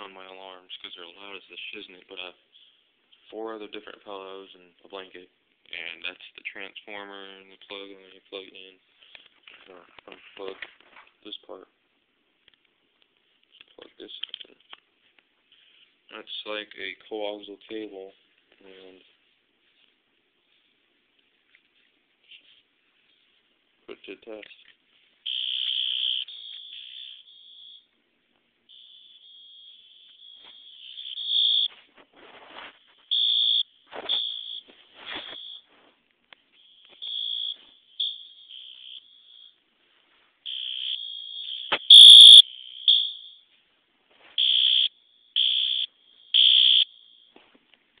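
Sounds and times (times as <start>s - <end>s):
fire alarm horn beeping: 28.7s - 31.8s, 33.1s - 34.7s, 37.0s - 39.1s, 40.5s - 43.4s, 44.4s - 47.2s.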